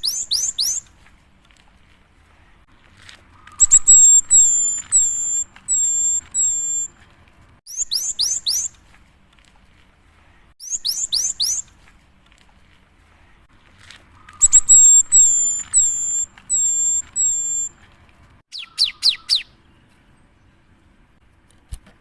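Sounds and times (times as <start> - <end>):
bird whistling song: 0.0 - 0.9, 3.4 - 7.0, 7.7 - 8.8, 10.6 - 11.7, 14.2 - 17.8, 18.5 - 20.0.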